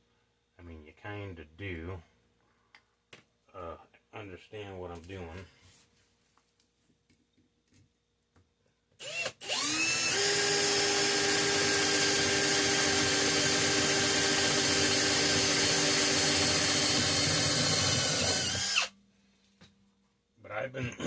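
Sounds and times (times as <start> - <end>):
electric drill motor whining: 9.0 - 18.9.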